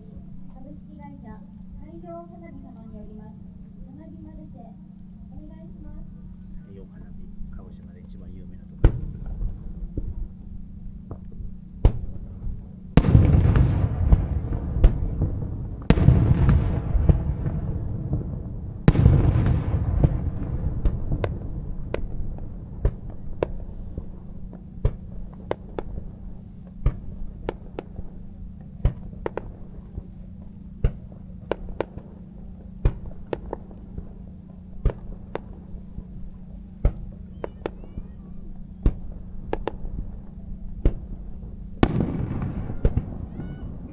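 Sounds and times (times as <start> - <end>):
steady low hum: 0.0 - 43.9
sharp single firework reports: 8.8 - 10.1, 11.8 - 12.3, 13.0 - 26.2, 36.8 - 43.9
firework shell bursts with crackle: 36.8 - 40.2.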